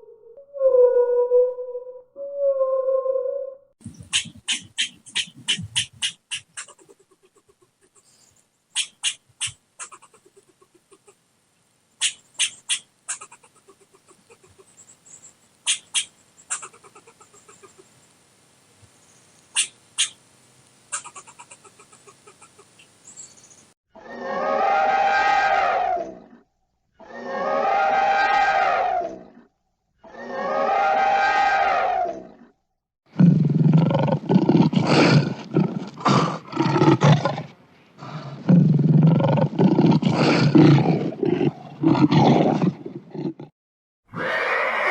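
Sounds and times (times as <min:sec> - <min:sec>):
animal squawks: 0:04.0 - 0:08.0, 0:08.8 - 0:11.2, 0:12.0 - 0:14.7, 0:15.6 - 0:17.8, 0:19.6 - 0:20.2, 0:20.9 - 0:22.8
big cat roaring: 0:33.2 - 0:43.5.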